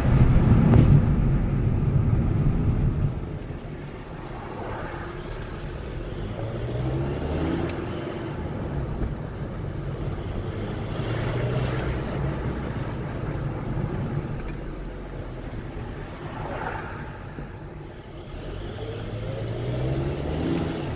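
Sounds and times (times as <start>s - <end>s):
diesel car engine accelerating: 0.0s - 20.9s.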